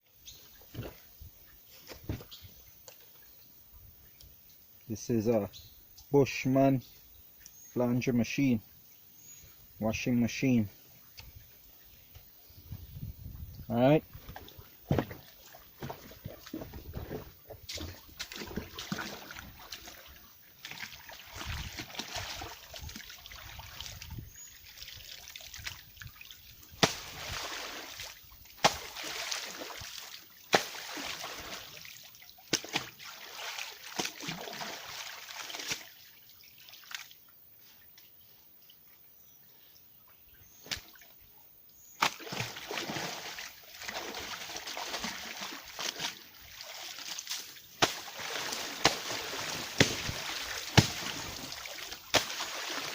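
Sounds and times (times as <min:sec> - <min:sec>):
laundry sloshing in water: 0:14.1 - 0:37.2, 0:42.0 - 0:52.9.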